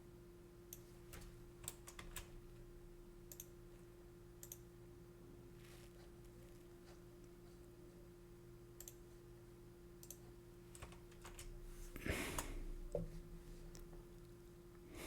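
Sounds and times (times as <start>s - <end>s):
computer mouse clicks: 3.3s - 3.5s, 4.4s - 4.6s, 8.8s - 9.0s, 10.0s - 11.5s.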